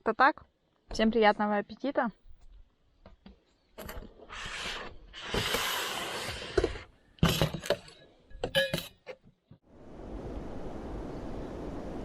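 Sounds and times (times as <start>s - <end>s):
metal cookware clinking: 8.5s - 9.0s.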